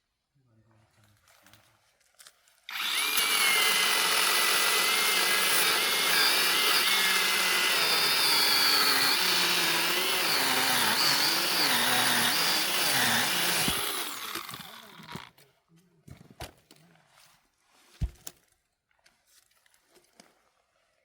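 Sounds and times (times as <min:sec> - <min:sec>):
chainsaw cutting firewood: 0:02.7 - 0:15.3.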